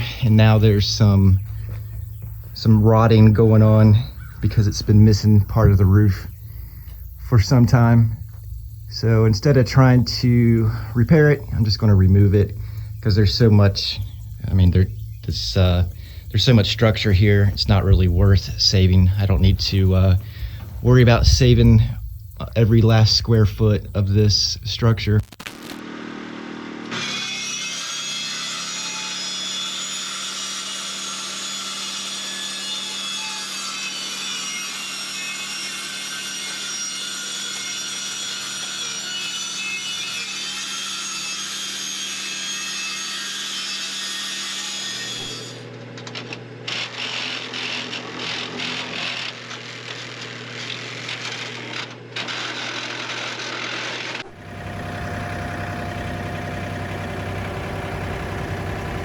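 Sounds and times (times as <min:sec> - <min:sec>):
motor hum: 0:00.0 - 0:25.2, 0:54.2 - 0:59.0
power saw cutting sheet metal: 0:25.9 - 0:45.8, 0:46.7 - 0:59.0.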